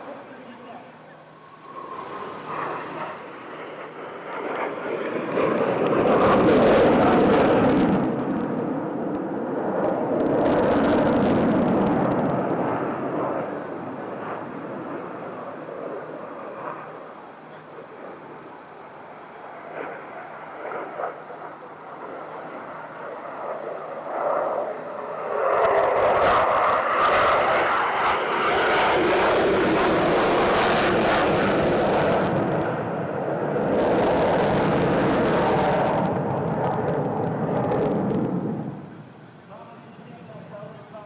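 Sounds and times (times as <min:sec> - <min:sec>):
jet engine roar: 0:00.0 - 0:41.0.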